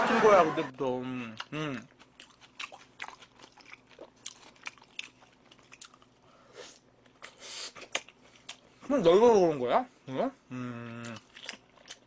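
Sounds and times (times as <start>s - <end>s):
chewing crunchy fried food: 1.3s - 8.8s, 10.8s - 12.0s.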